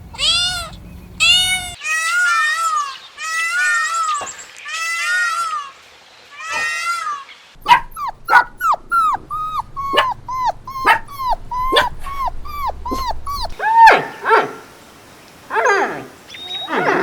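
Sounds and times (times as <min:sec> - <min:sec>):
dog yelping: 0:07.6 - 0:14.6, 0:15.5 - 0:17.0.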